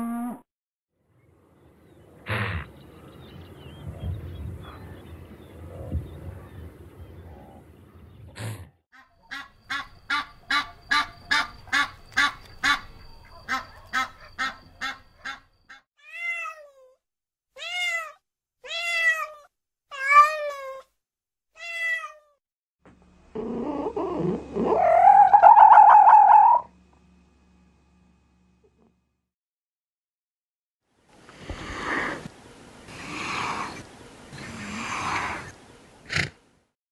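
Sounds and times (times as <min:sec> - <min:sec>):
cat meowing: 0:16.0 - 0:17.0, 0:17.6 - 0:20.9, 0:21.6 - 0:22.4
drawn-out rising call: 0:23.6 - 0:26.8
rapid repeated animal calls: 0:23.8 - 0:26.7, 0:33.0 - 0:36.4.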